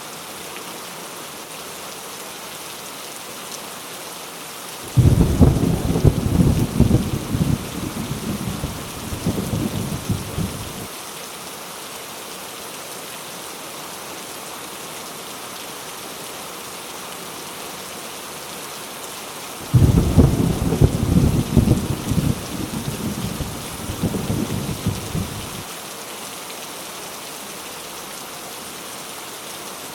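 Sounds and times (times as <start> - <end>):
heavy rain falling: 4.7 - 12.7, 17.4 - 29.9
thunder rumbling: 4.9 - 10.9, 19.6 - 25.6.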